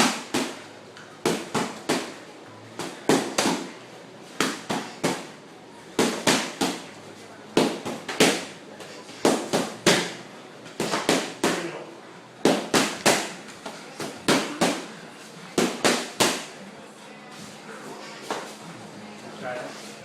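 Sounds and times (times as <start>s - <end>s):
punches smacking: 2.8s - 3.7s, 6.0s - 6.8s, 7.6s - 8.5s, 9.1s - 10.2s, 12.4s - 13.4s, 15.6s - 16.5s.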